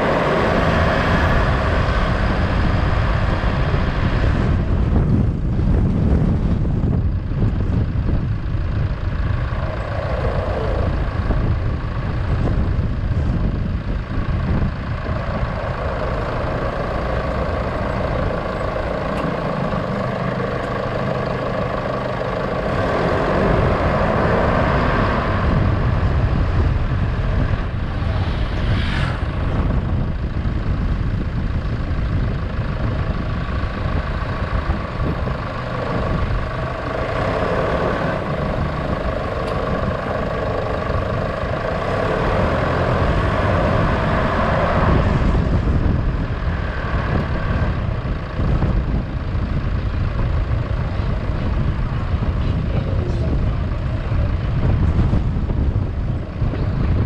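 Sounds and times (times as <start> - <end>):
road noise: 0.0 - 57.0
vehicle engine running: 0.0 - 57.0.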